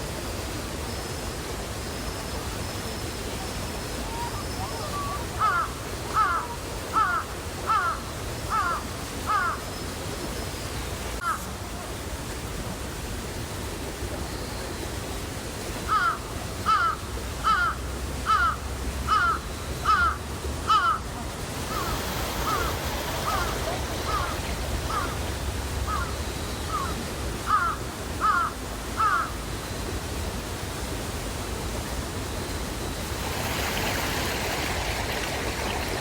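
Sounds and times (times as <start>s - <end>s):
background hiss: 0.0s - 36.0s
crow cawing: 5.4s - 9.6s, 15.9s - 21.1s, 21.7s - 25.2s, 25.9s - 29.3s.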